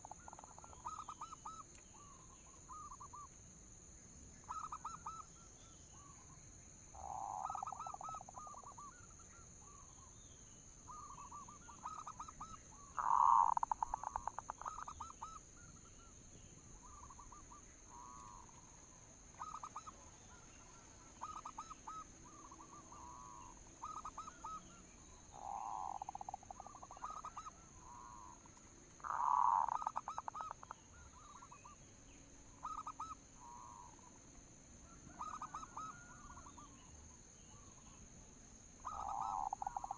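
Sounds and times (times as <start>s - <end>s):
dove cooing: 7.0s - 9.0s, 19.4s - 28.3s, 29.0s - 31.8s, 35.1s - 36.7s, 38.8s - 39.9s.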